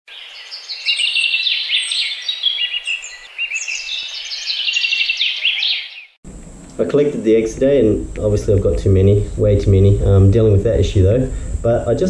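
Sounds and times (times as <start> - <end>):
songbirds chirping and trilling: 0.1 - 6.2
faint steady hiss: 6.3 - 12.0.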